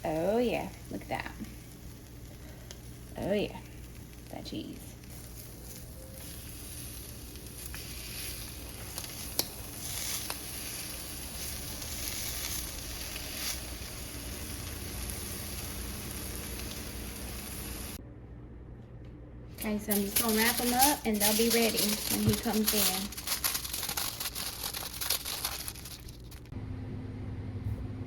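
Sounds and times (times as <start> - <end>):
food sizzling on a griddle: 0.2 - 18.0.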